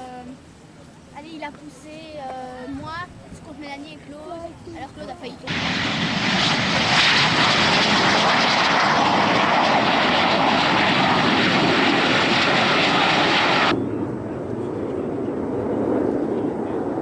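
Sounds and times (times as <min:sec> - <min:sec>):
aircraft engine roar: 0:05.4 - 0:17.0.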